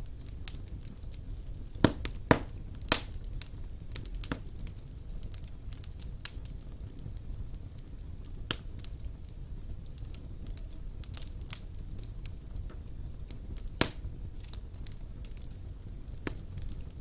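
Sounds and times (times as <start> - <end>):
fire rumbling: 0.0 - 17.0
wood fire crackling and popping: 0.0 - 17.0.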